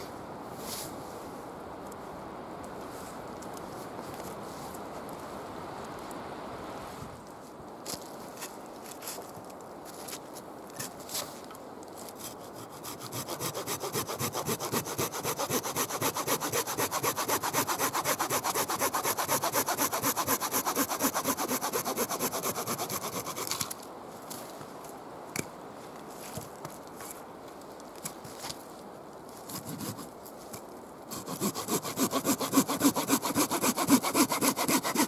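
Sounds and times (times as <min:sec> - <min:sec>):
hand saw cutting wood: 0:12.3 - 0:23.8, 0:29.5 - 0:30.0, 0:31.1 - 0:35.0.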